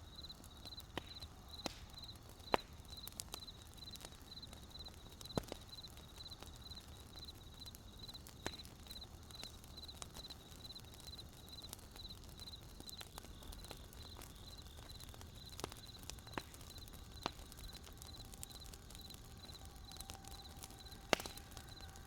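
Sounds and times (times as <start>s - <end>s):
crickets chirping: 0.0s - 2.2s, 5.8s - 8.2s, 13.6s - 22.0s
wood fire crackling and popping: 0.0s - 22.0s.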